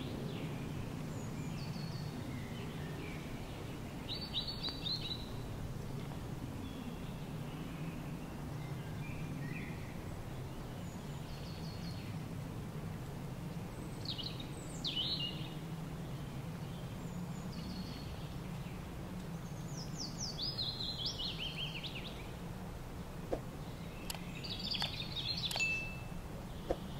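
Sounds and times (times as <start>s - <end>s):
small birds chirping: 0.0s - 12.6s, 13.4s - 26.9s
steady low hum: 0.0s - 26.9s.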